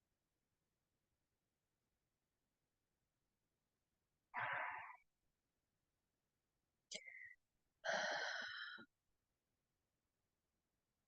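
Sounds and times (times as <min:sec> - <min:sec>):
person breathing out: 0:04.3 - 0:05.1, 0:07.0 - 0:08.9.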